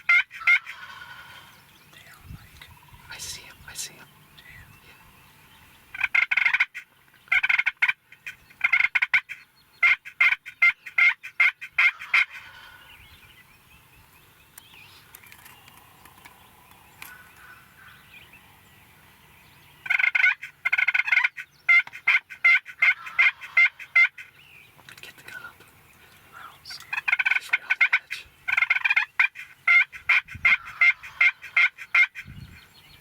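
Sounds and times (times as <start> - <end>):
turkey gobbling: 0.0 - 1.6, 5.9 - 12.9, 19.8 - 24.4, 26.9 - 32.3.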